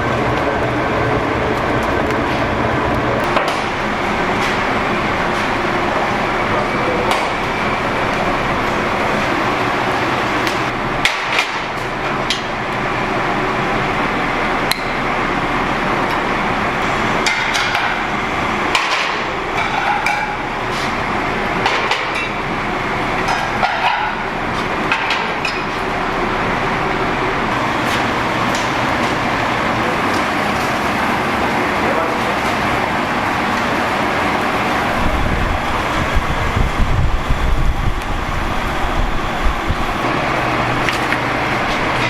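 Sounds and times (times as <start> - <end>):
steady noisy background: 0.0 - 42.0.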